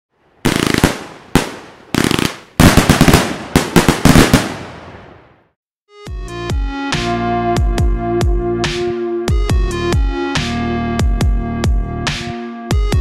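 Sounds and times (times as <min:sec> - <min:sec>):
fireworks crackling and banging: 0:00.3 - 0:05.5.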